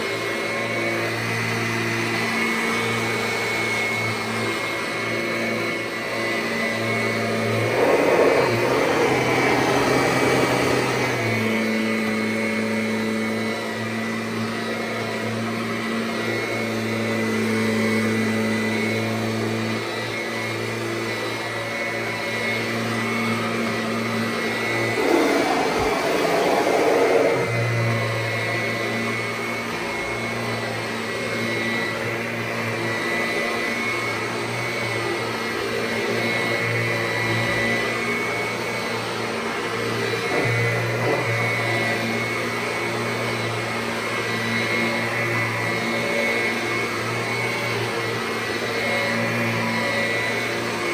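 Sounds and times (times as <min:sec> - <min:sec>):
vacuum cleaner motor hum and whine: 0:00.0 - 0:50.9
vacuum rushing noise: 0:24.9 - 0:27.6.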